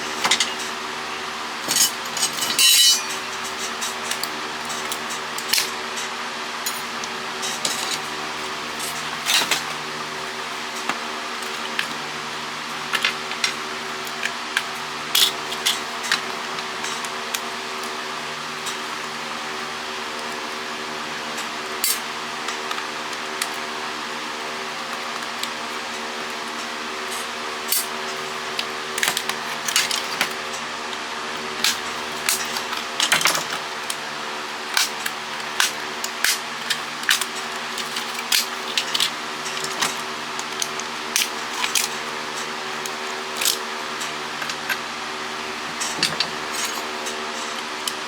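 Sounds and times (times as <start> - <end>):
plastic parts clicking and clattering: 6.7 - 12.0, 31.6 - 34.0, 34.7 - 44.8, 45.5 - 46.8.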